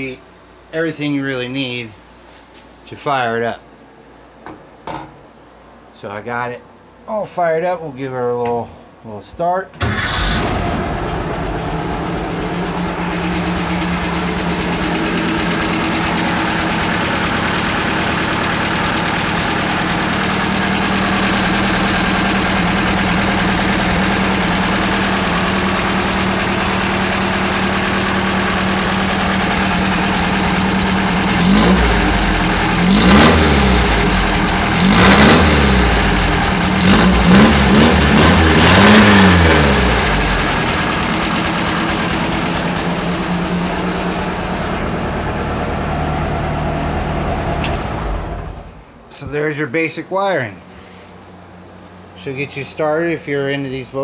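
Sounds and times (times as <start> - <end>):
car engine idling and revving: 9.8 - 48.9.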